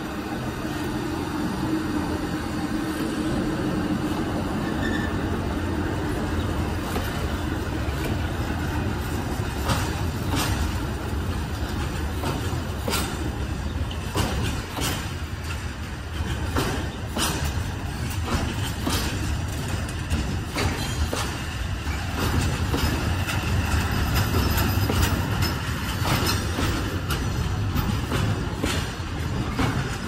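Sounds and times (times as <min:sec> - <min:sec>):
electric locomotive hum: 0:00.0 - 0:30.0
train wagons rumbling: 0:00.0 - 0:30.0
wheel clicks over rail joints: 0:06.2 - 0:30.0.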